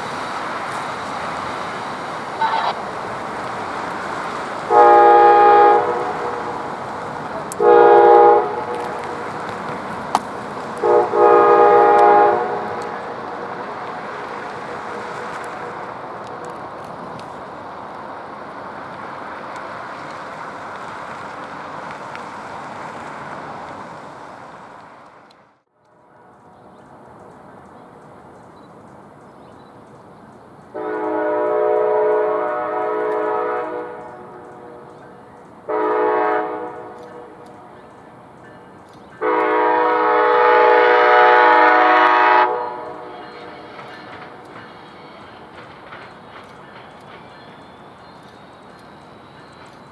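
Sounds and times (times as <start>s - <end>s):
train rolling past: 0.0s - 49.9s
faint ticks: 43.7s - 49.9s.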